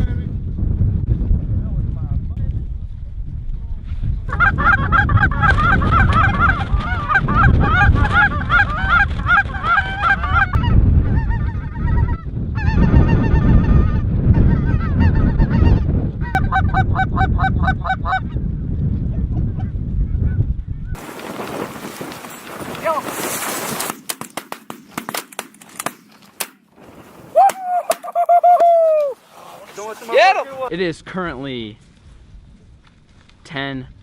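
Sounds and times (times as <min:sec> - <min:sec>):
wind rumbling on microphone: 0:00.0 - 0:24.0, 0:28.4 - 0:34.0
geese honking: 0:04.3 - 0:12.9.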